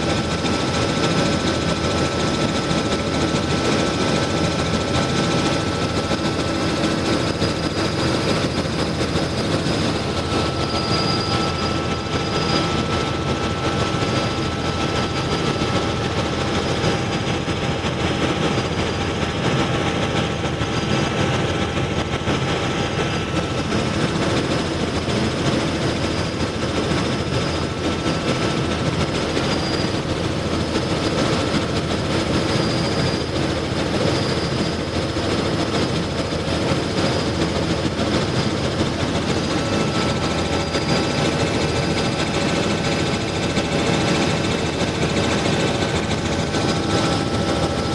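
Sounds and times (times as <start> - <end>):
helicopter rotor drone: 0.0 - 47.9
high turbine whine: 0.0 - 47.9.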